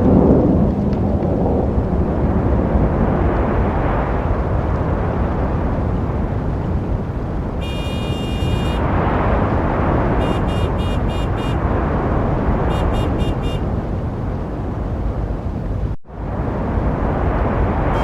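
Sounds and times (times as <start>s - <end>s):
road traffic rumble: 0.0s - 18.0s
high-pitched vehicle horn: 7.6s - 8.8s, 10.2s - 11.6s, 12.7s - 13.7s.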